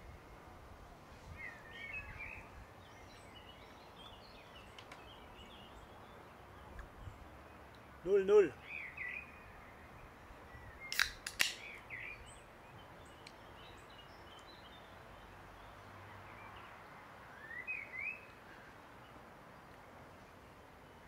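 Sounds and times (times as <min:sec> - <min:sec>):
faint outdoor background: 0:00.0 - 0:21.0
small birds chirping: 0:01.1 - 0:21.0
sharp clicks: 0:10.9 - 0:11.8.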